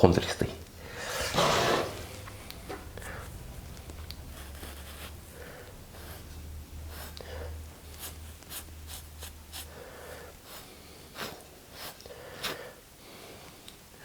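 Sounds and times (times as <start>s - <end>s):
low hum: 0.6s - 10.1s.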